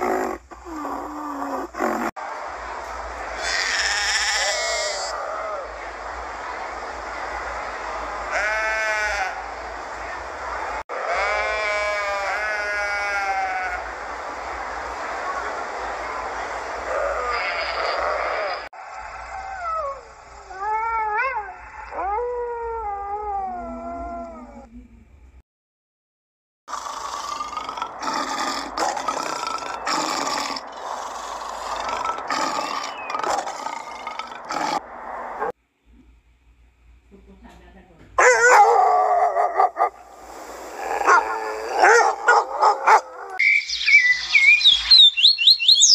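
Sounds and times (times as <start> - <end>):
steady background hiss: 0.0 - 20.6, 39.5 - 45.9
sheep bleating: 8.3 - 9.4, 11.0 - 13.8
lion calling: 26.7 - 35.5, 40.7 - 45.9.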